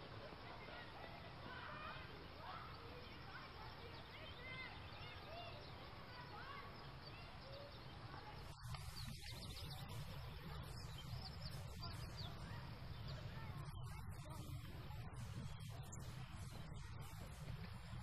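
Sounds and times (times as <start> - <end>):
faint bird chirps: 0.0 - 18.0
steady low rumble: 8.5 - 18.0.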